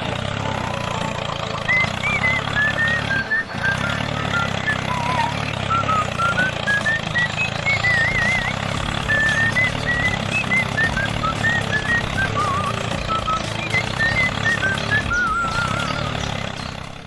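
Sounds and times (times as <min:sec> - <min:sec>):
small engine rattling: 0:00.0 - 0:17.0
whistle-like background music: 0:00.0 - 0:17.0.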